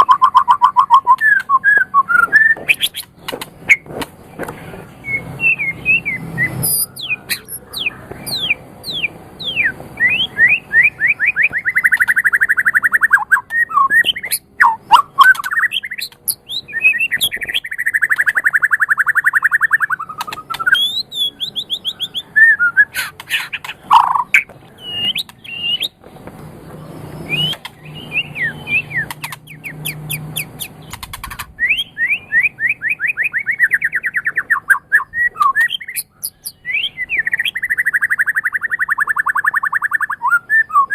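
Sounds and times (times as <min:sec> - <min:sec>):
bird singing whistled song: 0:00.0 - 0:03.1, 0:05.0 - 0:26.0, 0:27.1 - 0:30.9, 0:31.6 - 0:40.9
bird rattling trills: 0:22.9 - 0:26.0.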